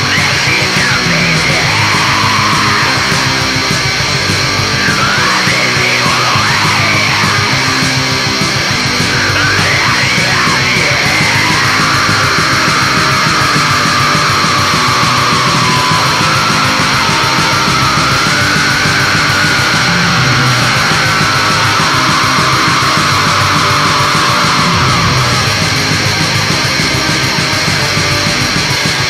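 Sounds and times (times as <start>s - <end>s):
heavy metal song with distorted guitars: 0.0s - 29.0s
high lead guitar line: 0.0s - 29.0s.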